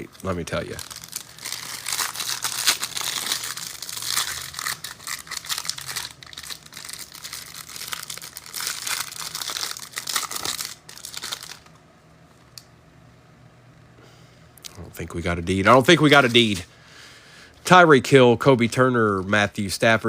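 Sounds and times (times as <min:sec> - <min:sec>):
plastic wrapper crinkling and tearing: 0:00.0 - 0:11.8.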